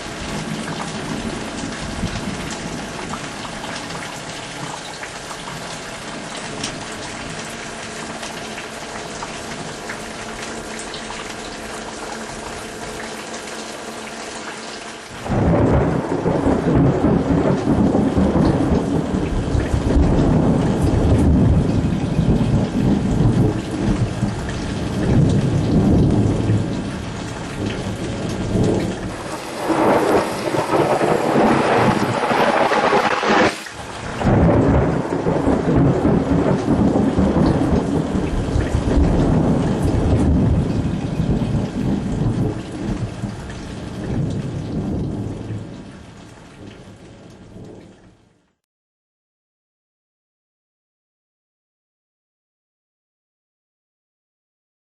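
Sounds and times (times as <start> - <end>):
steady rain falling: 0.0 - 48.6
rolling thunder: 15.2 - 45.9.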